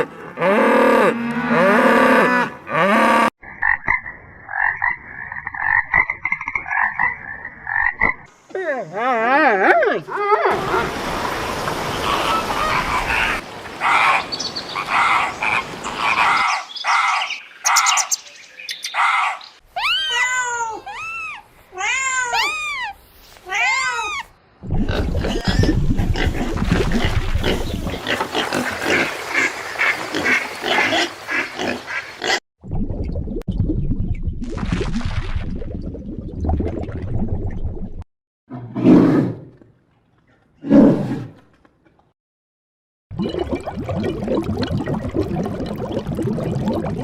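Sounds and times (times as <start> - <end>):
high rising and falling animal calls: 18.9 - 24.3.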